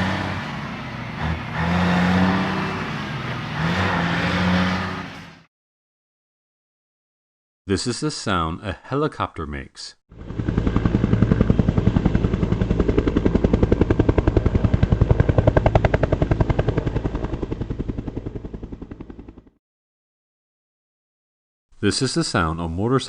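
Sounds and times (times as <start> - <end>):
helicopter rotor blades thudding: 0.0 - 5.4, 10.2 - 19.5.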